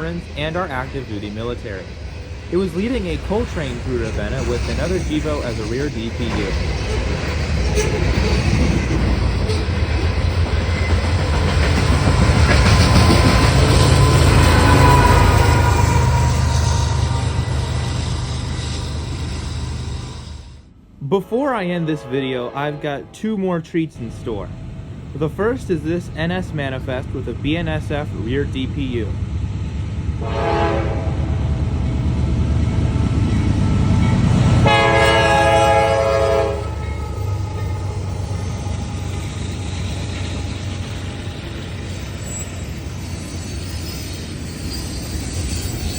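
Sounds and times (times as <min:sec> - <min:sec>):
wheels clacking over rail joints: 0:00.0 - 0:19.4
steel wheels rumbling on rail: 0:00.0 - 0:45.9
locomotive horn blasts: 0:14.0 - 0:17.7, 0:21.2 - 0:23.6, 0:30.2 - 0:31.3, 0:34.6 - 0:38.4.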